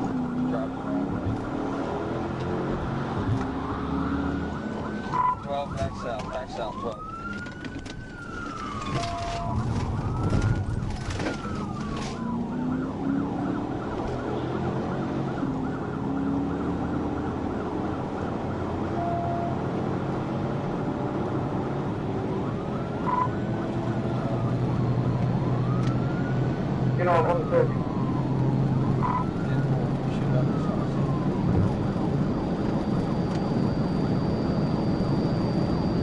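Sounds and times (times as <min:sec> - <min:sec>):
car engine accelerating: 0:00.0 - 0:05.5, 0:19.5 - 0:36.0
police siren wailing and yelping: 0:00.0 - 0:20.4, 0:22.0 - 0:36.0.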